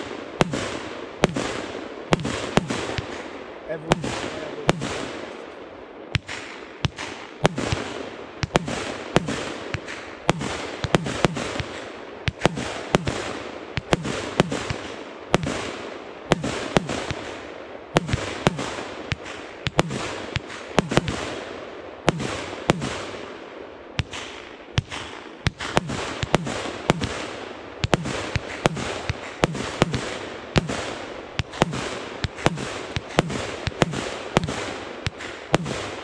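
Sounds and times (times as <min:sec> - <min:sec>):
continuous firework hiss: 0:00.0 - 0:36.0
firework shells bursting: 0:06.1 - 0:15.7, 0:16.3 - 0:21.5, 0:24.0 - 0:36.0.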